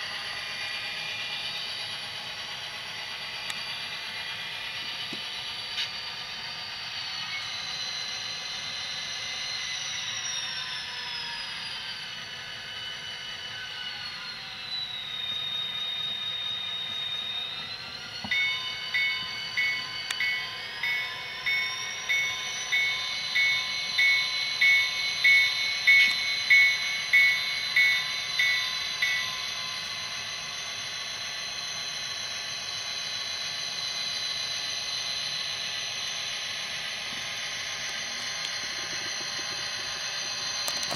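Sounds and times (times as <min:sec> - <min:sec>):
diesel locomotive engine sound: 0:00.0 - 0:40.9.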